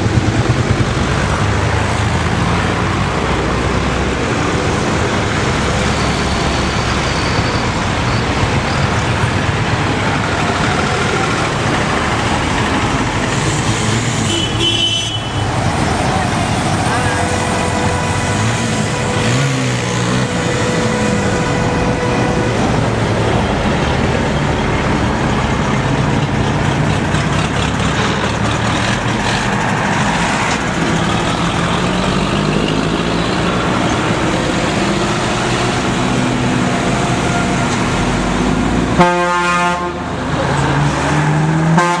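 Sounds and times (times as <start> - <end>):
tractor engines passing: 0.0 - 42.0
horn sounding: 13.3 - 25.3, 32.6 - 40.2, 41.5 - 42.0.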